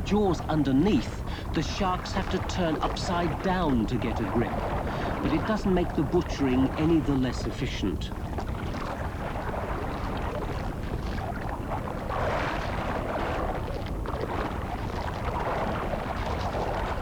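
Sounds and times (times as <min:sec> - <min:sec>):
water churning and splashing: 0:00.0 - 0:17.0.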